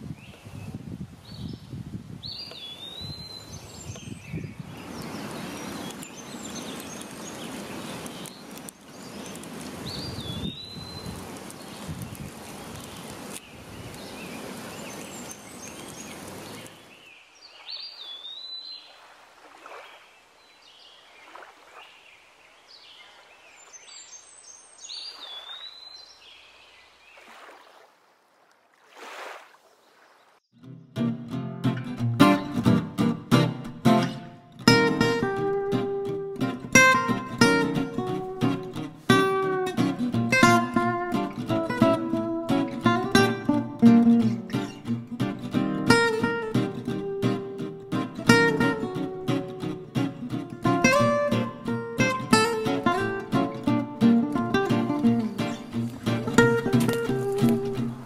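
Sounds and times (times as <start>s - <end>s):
wind noise: 0.0s - 8.3s, 9.0s - 15.0s.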